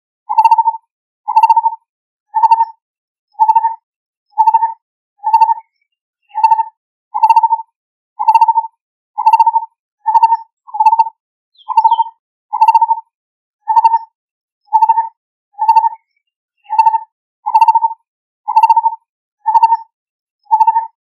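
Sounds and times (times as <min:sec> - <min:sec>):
barbet calling hollow notes: 0:11.6 - 0:12.8.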